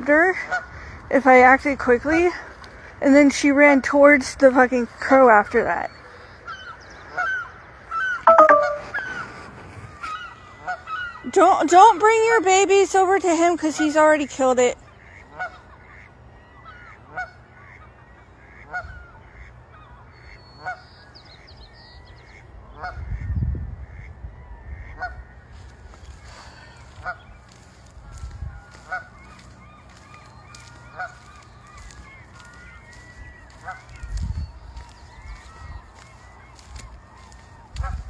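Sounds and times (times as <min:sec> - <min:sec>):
high bird chirps: 0:08.3 - 0:09.1
goose honking: 0:26.2 - 0:38.0.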